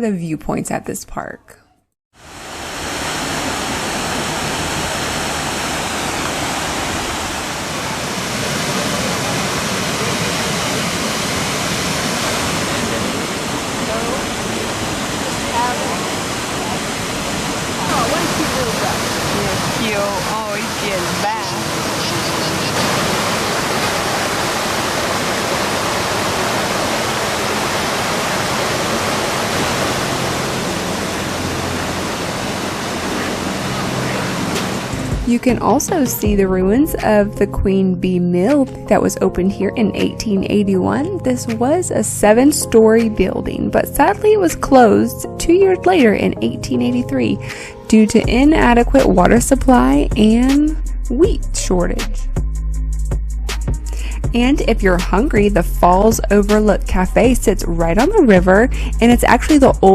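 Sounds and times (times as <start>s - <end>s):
waterfall rushing over rock: 2.2s - 35.2s.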